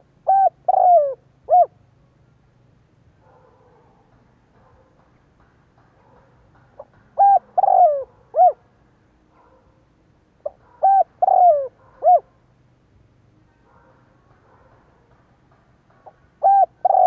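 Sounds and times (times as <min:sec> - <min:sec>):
dove cooing: 0:00.0 - 0:01.8, 0:06.8 - 0:08.7, 0:10.4 - 0:12.3, 0:16.0 - 0:17.0.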